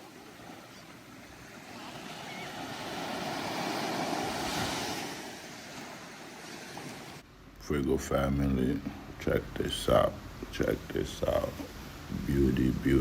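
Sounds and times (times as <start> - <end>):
ocean surf washing onto beach: 0.0 - 7.2.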